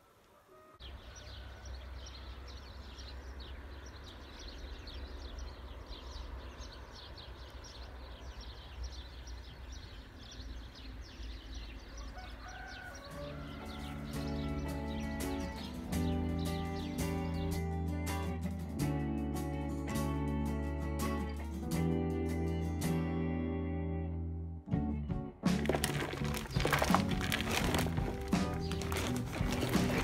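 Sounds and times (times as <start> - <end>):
birds chirping: 0.5 - 17.8, 25.6 - 30.0.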